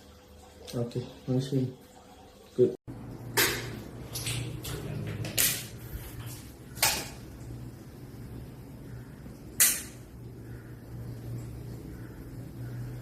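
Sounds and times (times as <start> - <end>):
low steady hum: 0.0 - 13.0
sharp clicks or knocks: 9.6 - 10.0.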